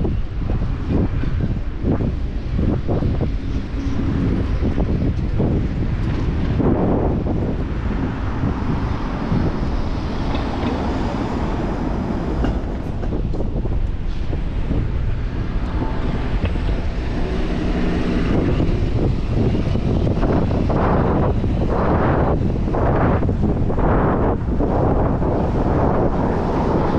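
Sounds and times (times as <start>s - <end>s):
street traffic rumble: 0.0s - 26.9s
wind buffeting microphone: 0.0s - 26.9s.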